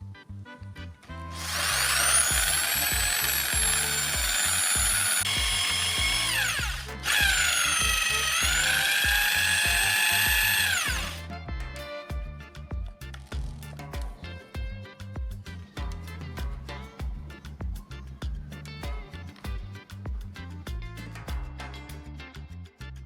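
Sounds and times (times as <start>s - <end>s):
background music: 0.0s - 23.0s
power tool motor whining: 1.3s - 11.2s.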